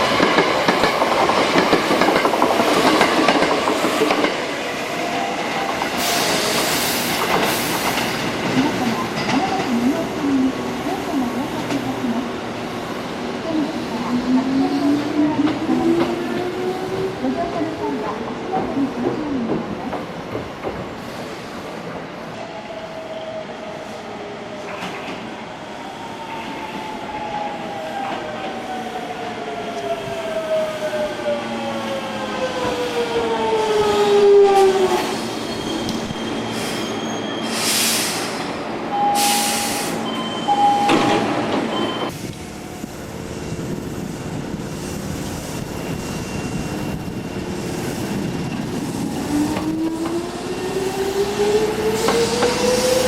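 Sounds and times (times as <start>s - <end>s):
train rumble: 0.0s - 22.1s, 37.5s - 53.0s
short loud hisses: 37.4s - 38.4s.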